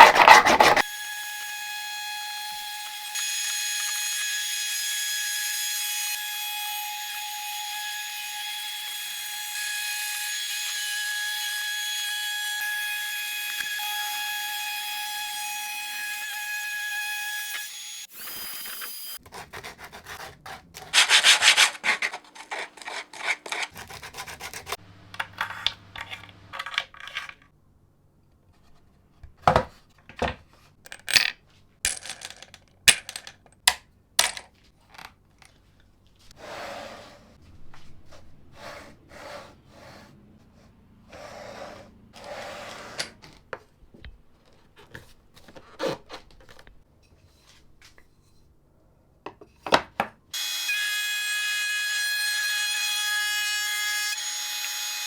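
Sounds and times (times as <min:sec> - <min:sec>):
wood rubbing and scraping: 0:00.0 - 0:00.9, 0:20.9 - 0:24.7.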